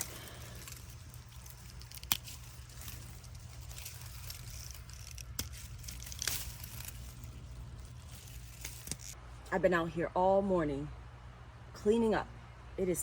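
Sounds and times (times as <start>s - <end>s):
pea pods snapping: 0.0s - 9.2s
vines rustling: 0.0s - 9.6s.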